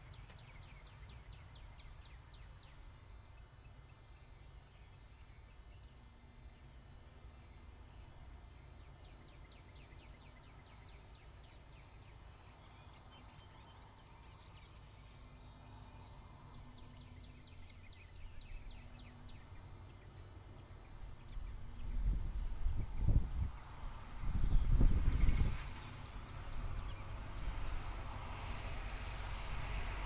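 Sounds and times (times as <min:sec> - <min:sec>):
wind rumble on microphone: 0:20.8 - 0:30.0.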